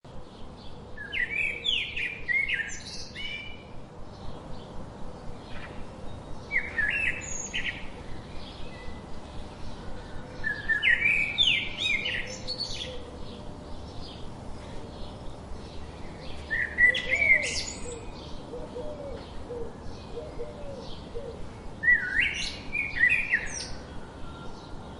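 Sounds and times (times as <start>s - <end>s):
outdoor background hiss: 0.0s - 24.9s
songbird chirping and whistling: 6.5s - 9.0s, 10.4s - 13.1s, 16.3s - 19.4s, 21.8s - 24.6s.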